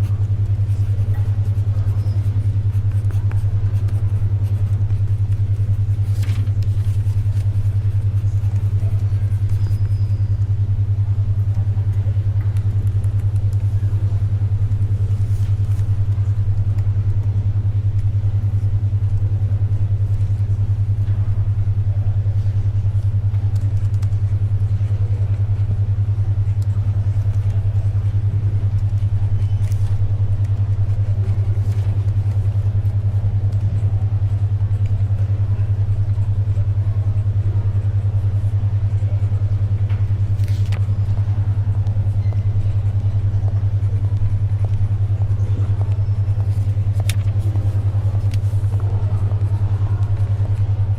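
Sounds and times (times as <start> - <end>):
paper and pencil sounds: 0.0 - 10.4, 12.0 - 16.9, 23.2 - 25.8, 26.4 - 35.0, 40.0 - 50.9
faint library background noise: 0.0 - 50.9
pulsing low hum tone: 0.0 - 50.9.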